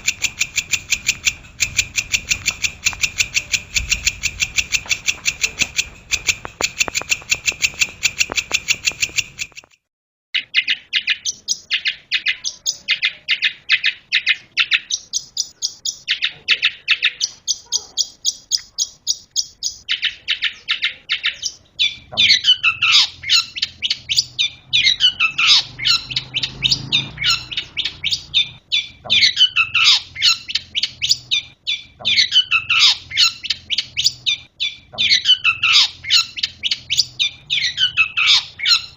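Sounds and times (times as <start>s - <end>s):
bird chattering song: 0.0s - 9.8s, 10.4s - 38.9s.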